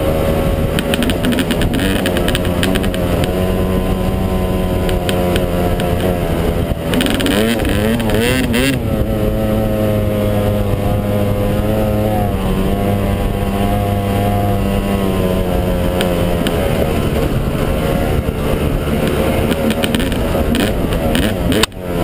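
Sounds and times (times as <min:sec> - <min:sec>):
dirt bike engine running: 0:00.0 - 0:22.0
sharp clicks and knocks: 0:00.7 - 0:03.4, 0:04.8 - 0:06.2, 0:06.8 - 0:08.3, 0:15.9 - 0:16.6, 0:19.0 - 0:21.8.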